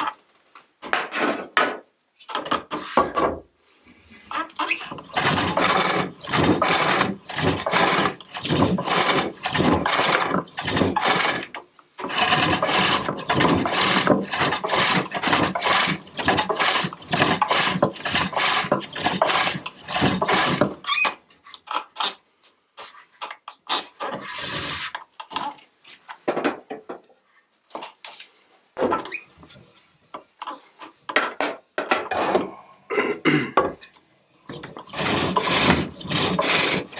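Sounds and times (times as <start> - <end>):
light scrapes and knocks: 2.2 - 3.4
hook tool rasping on wood: 4.7 - 20.8, 34.5 - 36.9.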